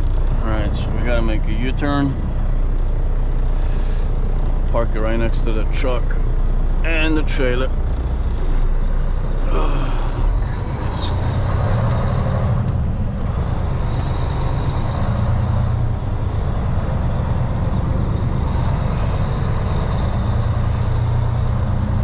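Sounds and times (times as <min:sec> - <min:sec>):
truck diesel engine running: 0:00.0 - 0:22.0.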